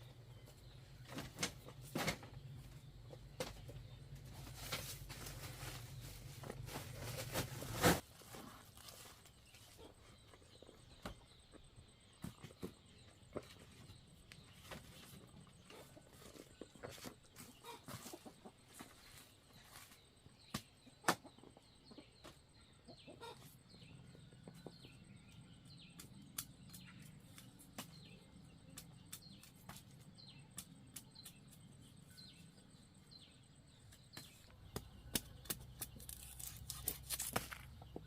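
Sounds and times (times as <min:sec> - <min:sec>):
chickens clucking: 0:14.6 - 0:19.9, 0:20.5 - 0:25.0.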